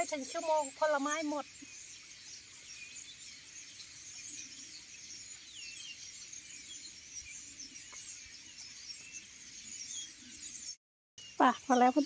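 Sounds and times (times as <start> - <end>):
small birds twittering: 0.0 - 12.0.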